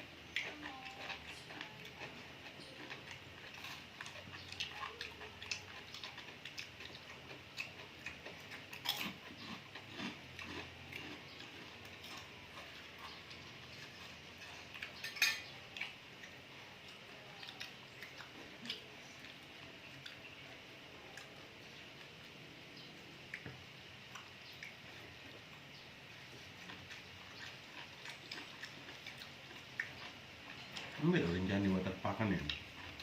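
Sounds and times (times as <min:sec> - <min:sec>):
chewing close to microphone: 0:00.3 - 0:22.2, 0:26.2 - 0:31.4, 0:32.4 - 0:33.0
cutlery clinking on dishes: 0:14.4 - 0:15.5.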